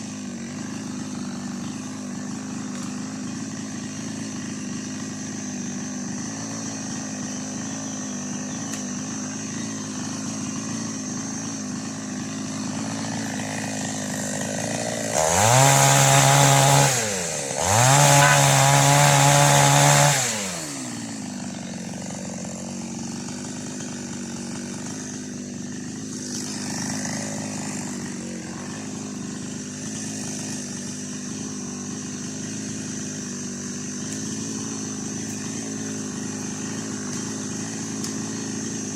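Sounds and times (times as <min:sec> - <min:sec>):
chainsaw idling and revving: 0:00.0 - 0:38.9.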